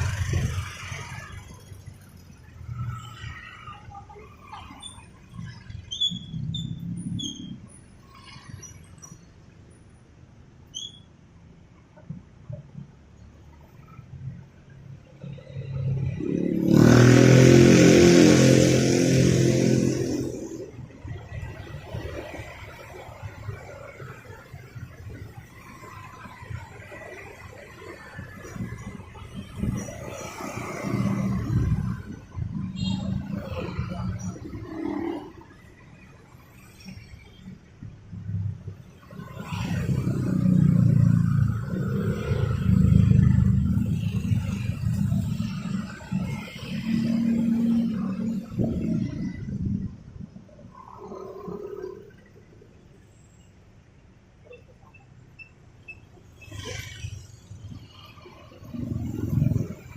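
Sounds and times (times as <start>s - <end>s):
vehicle engines passing: 0.0s - 10.1s, 11.8s - 59.9s
motorcycle passing by: 15.3s - 20.7s, 39.4s - 49.6s.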